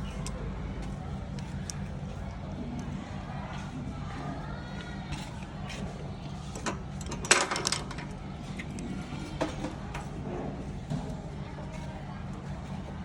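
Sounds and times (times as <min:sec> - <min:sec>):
steady low hum: 0:00.0 - 0:13.0
tools clattering: 0:06.6 - 0:08.1.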